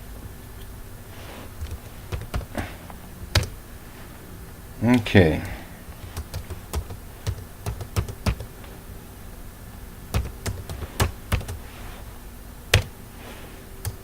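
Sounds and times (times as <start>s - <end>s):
keyboard keystrokes: 1.6s - 2.6s, 3.3s - 3.6s, 5.4s - 8.6s, 10.1s - 11.6s, 12.7s - 12.9s.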